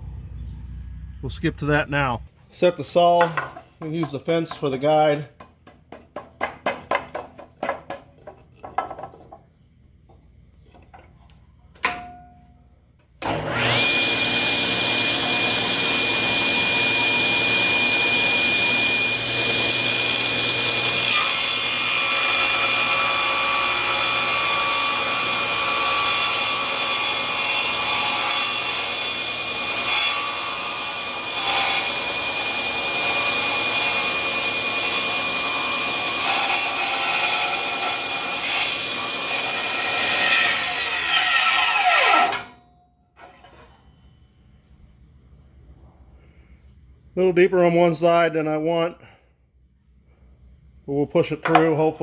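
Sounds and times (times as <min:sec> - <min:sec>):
saw blade cutting wood: 0:13.2 - 0:42.5
table saw whining: 0:13.2 - 0:42.6.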